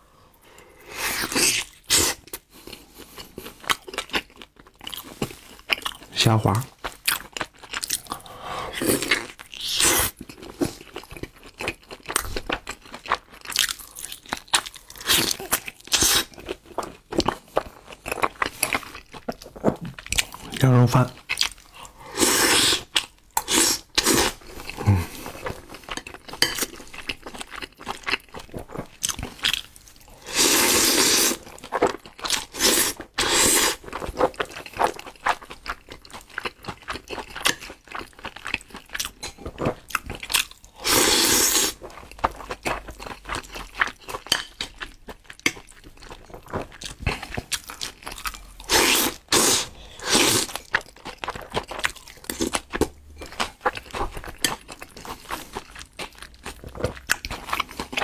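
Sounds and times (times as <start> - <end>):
close chewing with wet smacks: 6.8 - 8.1, 9.2 - 20.6, 21.2 - 21.9, 24.6 - 29.8, 33.8 - 40.7, 41.8 - 48.7, 50.3 - 58.0.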